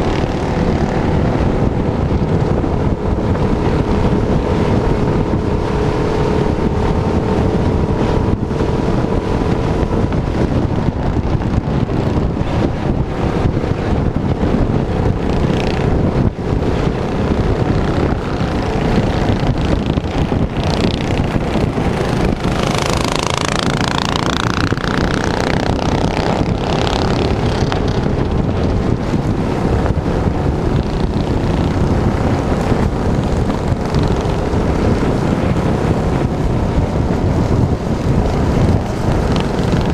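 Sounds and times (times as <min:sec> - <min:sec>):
wind buffeting microphone: 0:00.0 - 0:39.9
small engine running: 0:17.0 - 0:28.2.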